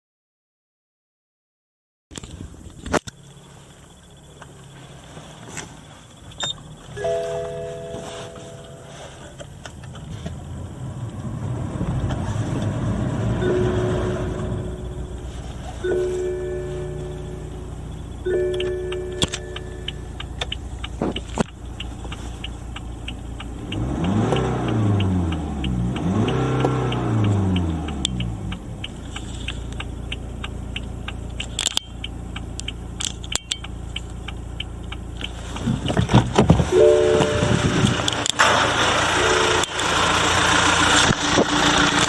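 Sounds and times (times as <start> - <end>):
diesel engine idling and revving: 2.6 - 42.0
sharp clicks: 16.8 - 36.6.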